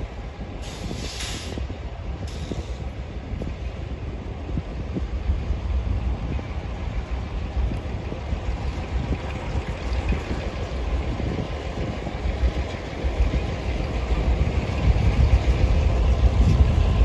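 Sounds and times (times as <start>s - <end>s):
freight train rumbling: 0.0s - 17.0s
brief hiss: 0.6s - 2.8s.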